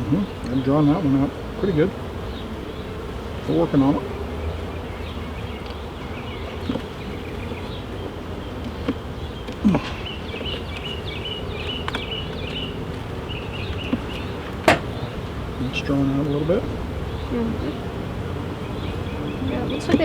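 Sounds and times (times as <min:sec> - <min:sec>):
honeybees buzzing: 0:00.0 - 0:20.0
light knocks: 0:13.7 - 0:15.1.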